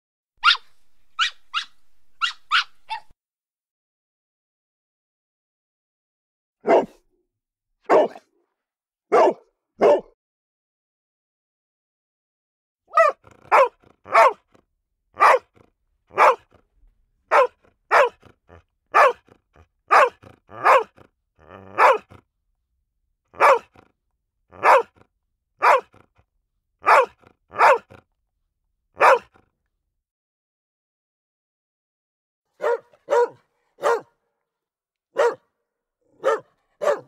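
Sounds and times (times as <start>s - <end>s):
dog barking: 0.4s - 3.1s, 6.6s - 7.0s, 7.8s - 8.3s, 9.1s - 10.2s, 12.9s - 14.6s, 15.2s - 16.6s, 17.3s - 22.2s, 23.4s - 23.9s, 24.5s - 26.1s, 26.8s - 28.0s, 29.0s - 29.4s, 32.5s - 34.2s, 35.1s - 35.5s, 36.1s - 37.0s
dog growling: 13.0s - 14.6s, 17.3s - 22.3s, 23.4s - 25.1s.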